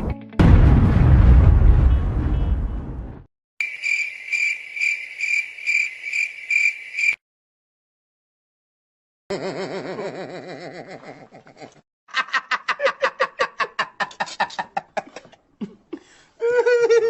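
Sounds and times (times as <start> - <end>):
person laughing: 9.3 - 17.0.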